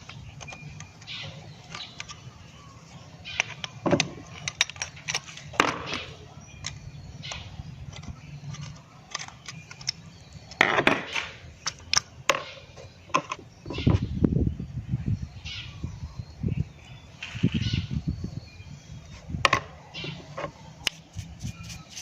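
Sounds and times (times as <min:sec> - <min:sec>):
metal parts clinking: 0:03.4 - 0:05.6, 0:07.9 - 0:10.6.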